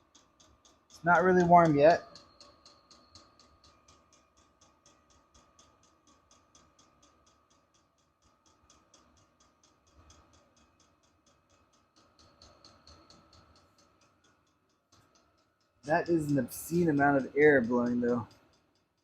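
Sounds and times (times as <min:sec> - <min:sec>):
fuel pump ticking: 0:00.1 - 0:06.9
blower fan whine: 0:15.9 - 0:18.2.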